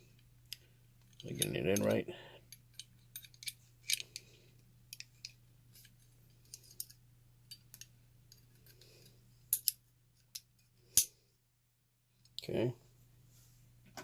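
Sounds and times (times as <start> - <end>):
metal pistol parts clicking: 2.5 - 4.3, 4.9 - 8.9, 9.5 - 11.1.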